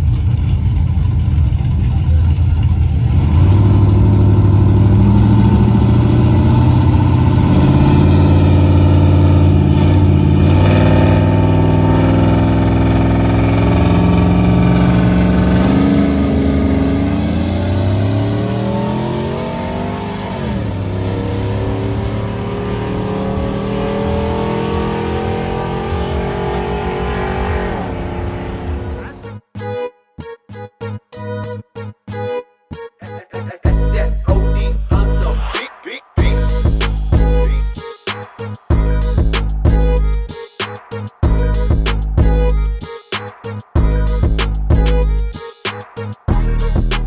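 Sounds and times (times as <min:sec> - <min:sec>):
pickup truck engines revving: 0:00.0 - 0:29.2, 0:36.2 - 0:37.8, 0:38.5 - 0:40.2, 0:41.2 - 0:42.7.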